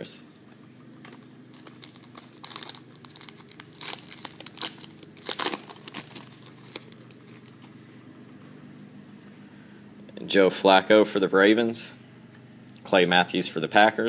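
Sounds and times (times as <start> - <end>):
foil tearing: 1.0 - 7.6
foil wrapper crinkling: 1.0 - 7.8.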